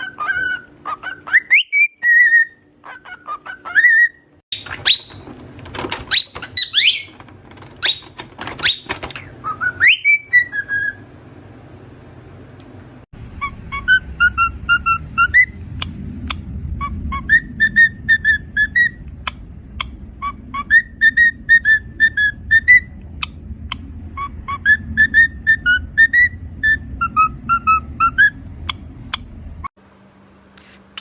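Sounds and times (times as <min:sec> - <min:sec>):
cockatiel whistling a tune: 0:00.0 - 0:05.2, 0:06.1 - 0:07.1, 0:07.8 - 0:11.0, 0:13.4 - 0:15.6, 0:16.8 - 0:19.0, 0:19.8 - 0:23.4, 0:24.2 - 0:29.2.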